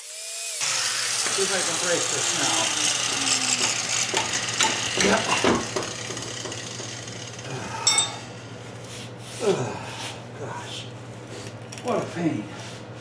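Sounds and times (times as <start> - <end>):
hand tools clinking on metal: 3.6 - 6.9, 7.8 - 8.4
ringing metallic clink: 7.8 - 8.4.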